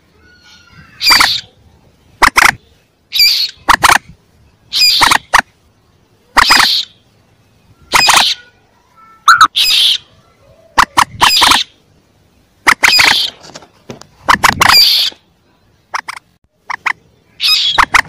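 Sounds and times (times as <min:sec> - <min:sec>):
moorhen chicks squawking: 0:00.2 - 0:05.6, 0:06.3 - 0:07.1, 0:07.8 - 0:08.6, 0:09.2 - 0:11.9, 0:12.6 - 0:15.3, 0:15.9 - 0:18.0.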